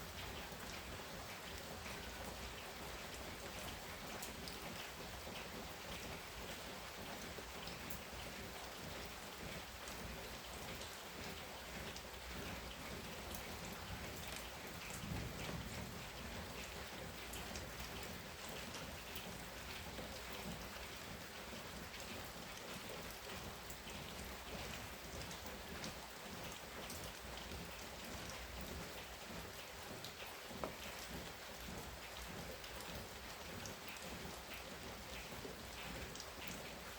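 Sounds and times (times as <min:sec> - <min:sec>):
heavy rain falling: 0:00.0 - 0:36.9
low rumble of thunder: 0:14.9 - 0:16.4.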